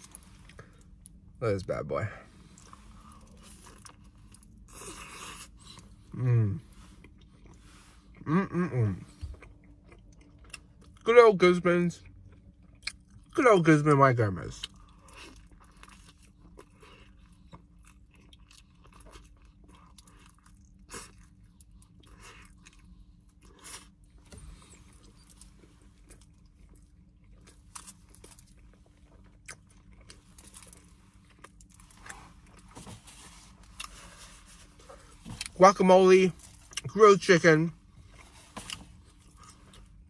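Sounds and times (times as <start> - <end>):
faint low hum: 0.0 - 40.0
soft eating clicks and crackles: 2.4 - 6.1, 6.8 - 8.3, 9.0 - 11.2, 11.9 - 34.4, 38.0 - 40.0
person chewing food: 2.4 - 11.0, 12.0 - 13.4, 14.6 - 35.6.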